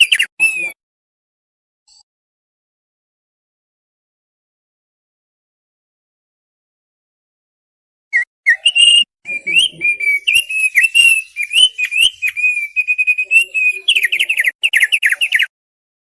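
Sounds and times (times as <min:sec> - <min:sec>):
bird singing whistled notes: 0:00.0 - 0:00.8, 0:08.1 - 0:15.5.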